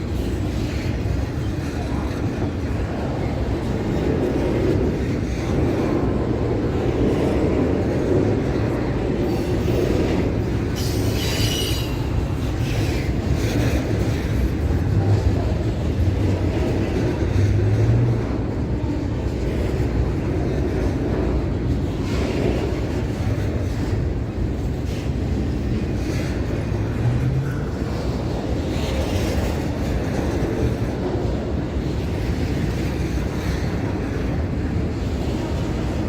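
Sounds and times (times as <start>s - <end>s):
train rumbling on track: 0.0s - 36.0s
high-pitched wheel squeal: 10.8s - 12.1s.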